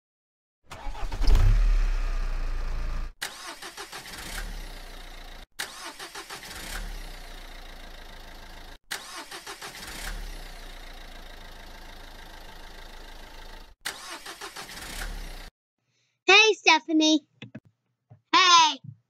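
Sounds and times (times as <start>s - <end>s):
car engine starting and running: 0.7s - 15.5s.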